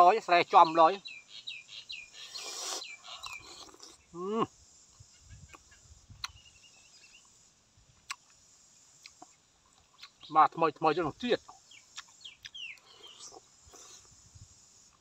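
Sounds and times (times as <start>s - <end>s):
bird chirping: 0.3s - 4.1s, 5.0s - 7.4s, 9.0s - 10.6s, 11.4s - 14.0s
soft chewing: 9.0s - 10.3s, 11.4s - 14.2s.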